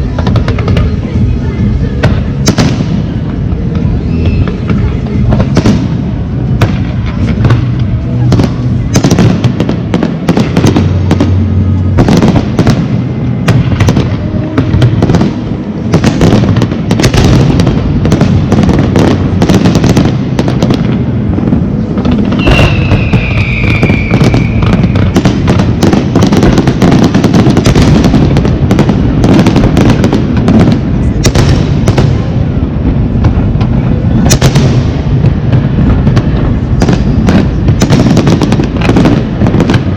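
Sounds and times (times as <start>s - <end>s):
whistling firework: 0.0s - 11.4s, 21.8s - 32.3s
fireworks bursting and crackling: 0.0s - 39.9s.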